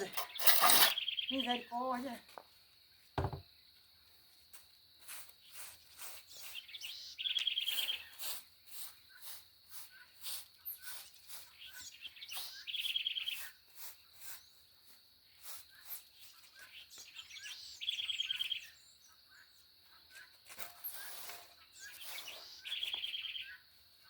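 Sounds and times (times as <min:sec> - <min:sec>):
short scraping strokes: 0:00.0 - 0:01.0
small bird trilling: 0:00.0 - 0:01.7.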